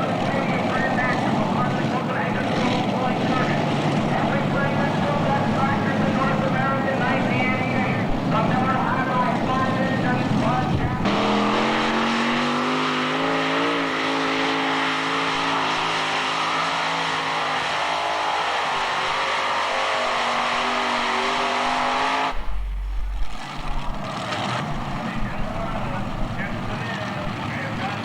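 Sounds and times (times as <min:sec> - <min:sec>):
tractor engine at full throttle: 0:00.0 - 0:28.0
low thumping rumbles: 0:03.1 - 0:12.0, 0:22.3 - 0:27.4.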